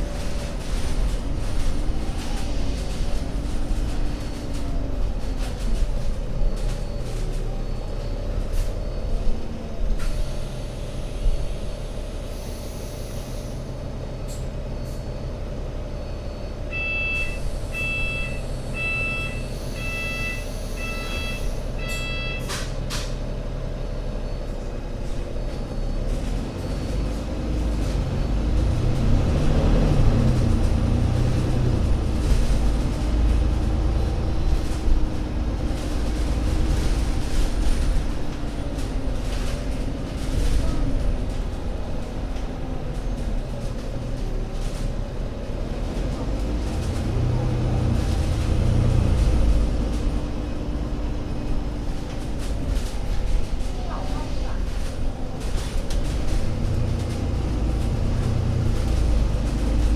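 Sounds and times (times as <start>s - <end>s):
bus diesel engine running: 0.0s - 59.9s
air brake hiss: 12.3s - 13.7s
short electronic warning beeps: 16.1s - 22.6s.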